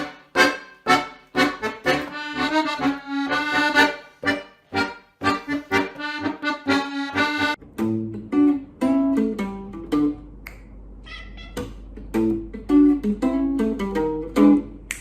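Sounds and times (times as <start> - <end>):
accordion playing bouncy chords: 0.0 - 7.7.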